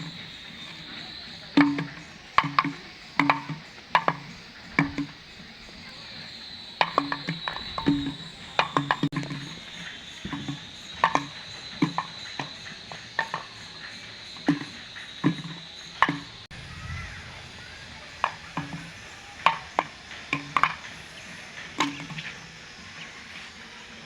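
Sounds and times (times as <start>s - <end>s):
frogs croaking: 0.0s - 24.0s
steady high-pitched tone: 16.4s - 23.4s.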